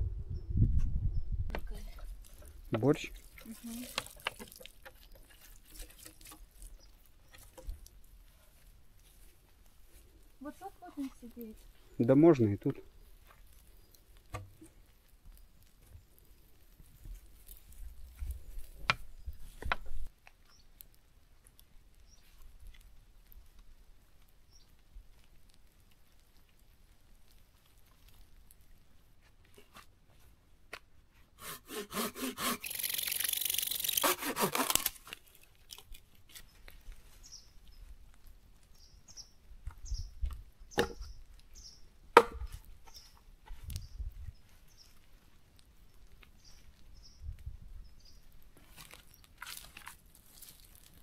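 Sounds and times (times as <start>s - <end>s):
wood cracking: 1.5s - 9.1s, 13.2s - 21.8s, 31.4s - 37.0s, 48.5s - 51.0s
saw cutting wood: 31.4s - 35.0s.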